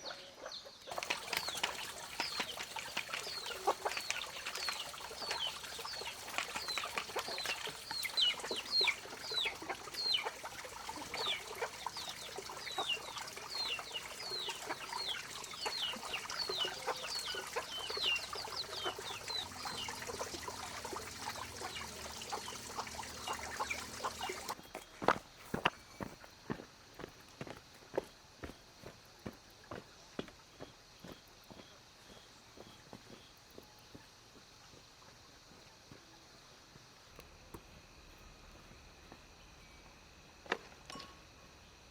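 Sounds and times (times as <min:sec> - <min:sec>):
chickens peeping: 0:00.0 - 0:24.6.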